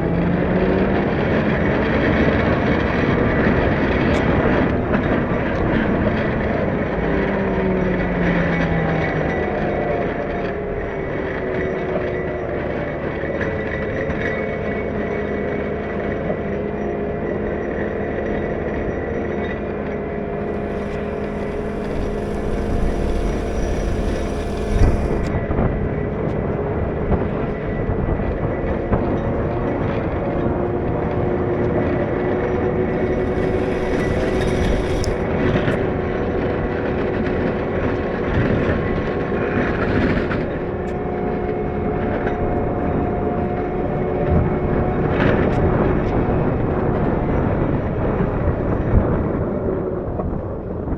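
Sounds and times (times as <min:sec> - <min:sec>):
wheel loader engine humming: 0:20.3 - 0:25.4, 0:32.6 - 0:35.3
hydraulic hiss: 0:20.4 - 0:25.3, 0:32.9 - 0:35.2.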